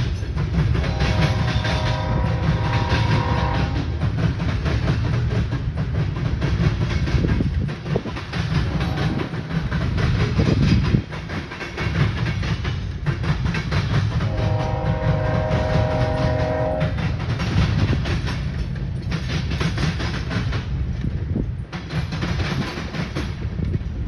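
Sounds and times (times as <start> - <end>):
freight train rumbling past: 0.0 - 24.0
wheels clacking over rails: 0.0 - 24.0
locomotive air horn: 0.8 - 3.8, 14.3 - 17.0.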